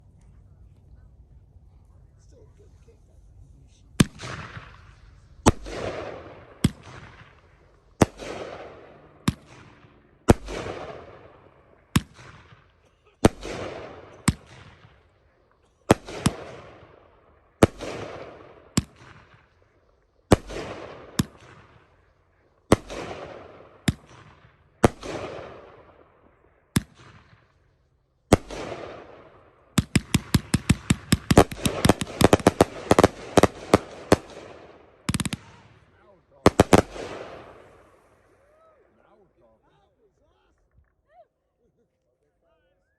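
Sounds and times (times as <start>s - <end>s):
firework shots banging: 4.0s - 19.6s, 20.3s - 27.7s, 28.3s - 38.3s.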